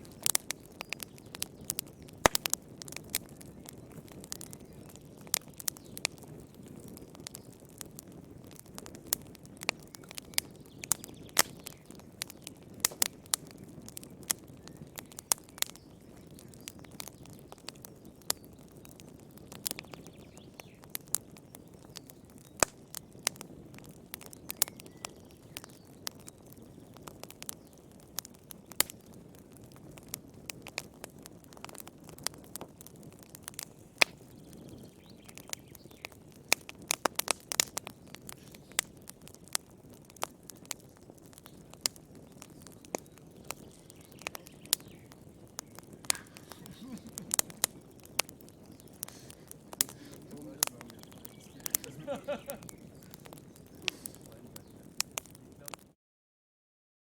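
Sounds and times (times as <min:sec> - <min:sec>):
fire crackling and popping: 0:00.0 - 0:56.0
flames rustling: 0:00.0 - 0:56.0.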